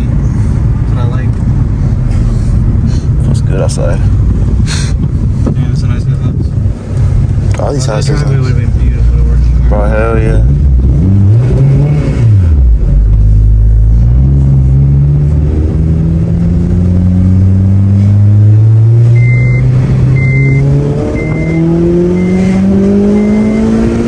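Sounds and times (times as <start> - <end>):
car engine accelerating: 0.0 - 24.0
short high beeps: 19.2 - 22.5, 23.1 - 23.9.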